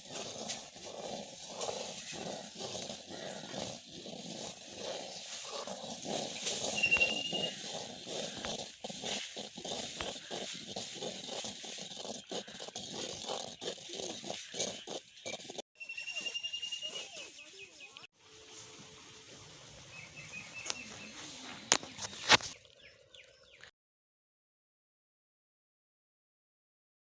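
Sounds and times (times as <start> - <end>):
thick dough stirred in a pot: 0.0 - 15.6.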